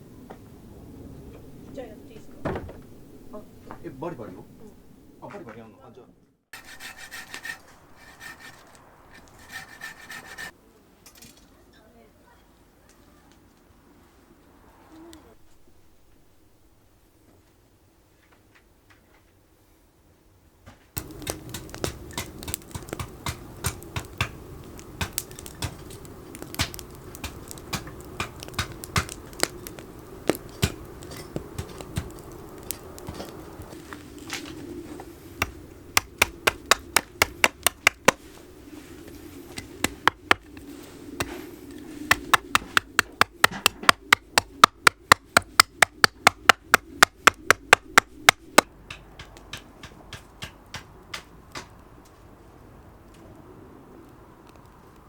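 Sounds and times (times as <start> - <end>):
hand tools clicking on wood: 6.6 - 10.5, 21.0 - 24.4, 25.0 - 33.4, 35.4 - 38.2, 39.5 - 51.8.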